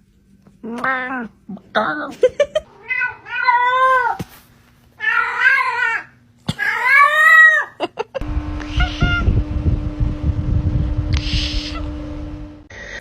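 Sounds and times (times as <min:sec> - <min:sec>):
low rumbling hum: 0:08.2 - 0:12.9.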